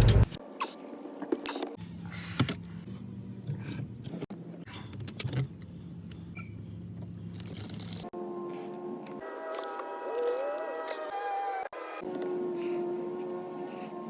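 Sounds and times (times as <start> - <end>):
low motor-like hum: 10.1 - 14.0.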